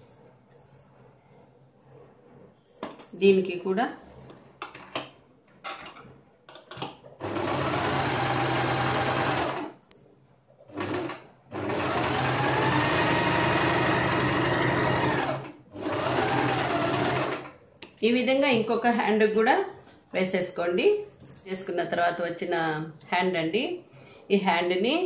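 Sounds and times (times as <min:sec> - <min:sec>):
sewing machine stitching: 0:07.2 - 0:09.7, 0:10.7 - 0:17.6.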